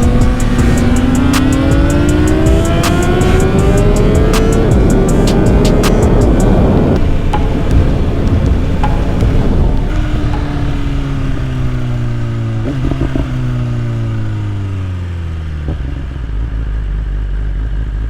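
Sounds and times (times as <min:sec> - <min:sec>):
wind rumble on microphone: 0:00.0 - 0:14.8
motorcycle engine running: 0:00.0 - 0:18.0.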